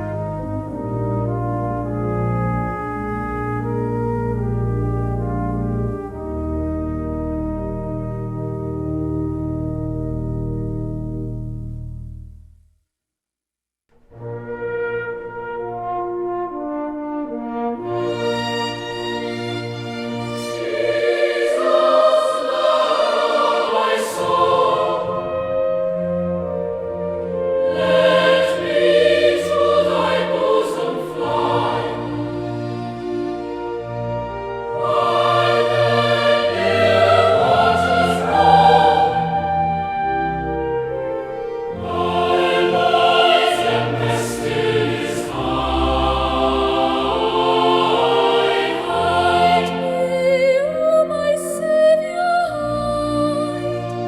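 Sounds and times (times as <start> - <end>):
choir singing a slow hymn: 20.2 - 33.3, 34.5 - 40.2, 41.7 - 54.0.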